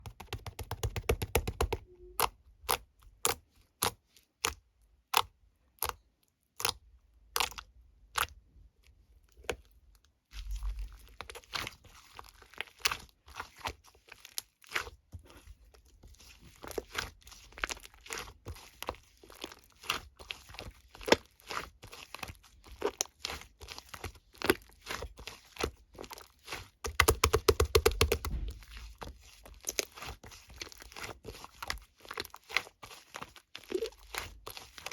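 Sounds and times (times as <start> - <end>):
slime popping and crackling: 16.7 - 34.9.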